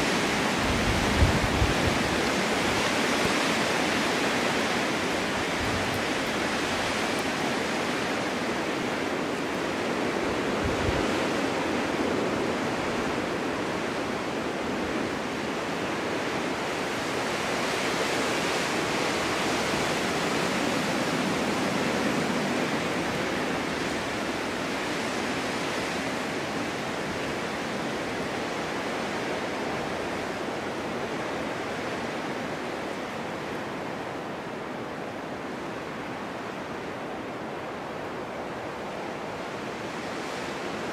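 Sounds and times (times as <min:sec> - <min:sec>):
snowstorm wind gusting: 0:00.0 - 0:40.9.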